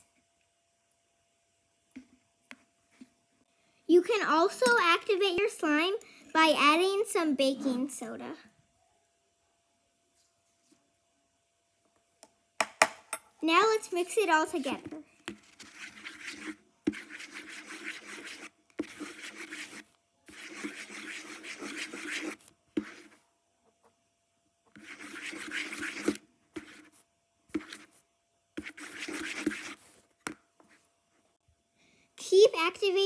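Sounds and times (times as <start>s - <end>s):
utensil stirring and scraping slime: 13.5s - 23.3s, 24.7s - 30.8s.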